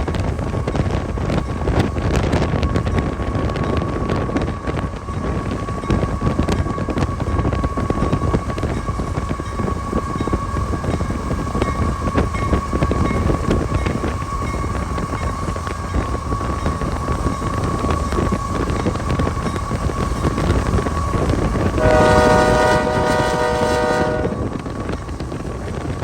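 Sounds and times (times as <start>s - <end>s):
train rumbling: 0.0s - 26.0s
locomotive air horn: 21.8s - 24.6s.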